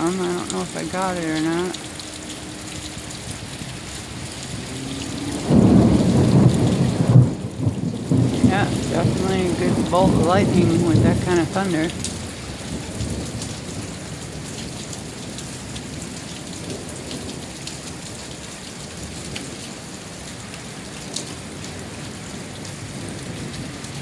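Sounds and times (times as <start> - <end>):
heavy rain falling: 0.0 - 24.0
raindrops ticking close by: 0.0 - 24.0
low thunder rumble: 1.7 - 15.2.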